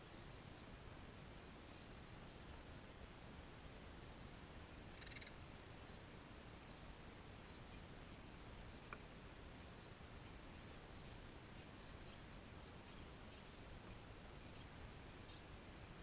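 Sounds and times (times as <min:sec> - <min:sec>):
faint small bird chirps: 0:01.4 - 0:02.4, 0:03.9 - 0:06.8, 0:07.4 - 0:07.9, 0:08.6 - 0:16.0.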